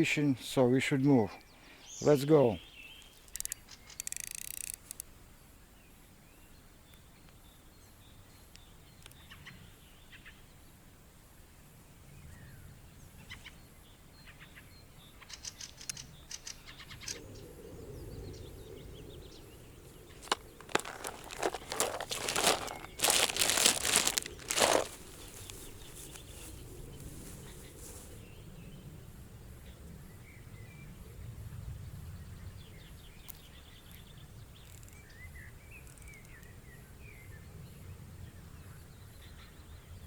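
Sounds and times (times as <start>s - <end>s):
rustling and crackling: 20.1s - 28.2s.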